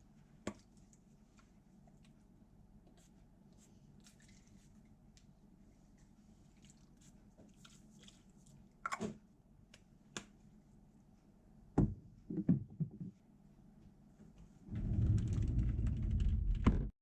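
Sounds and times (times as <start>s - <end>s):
knocks and thuds: 14.7s - 16.9s.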